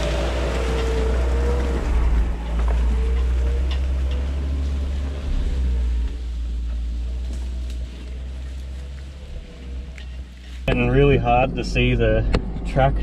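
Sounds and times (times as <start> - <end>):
vehicle engine rumble with whine: 0.0 - 13.0.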